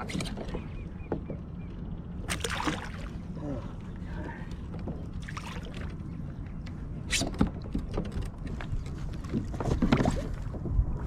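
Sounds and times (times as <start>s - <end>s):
water splashing: 2.3s - 3.4s, 5.2s - 6.0s.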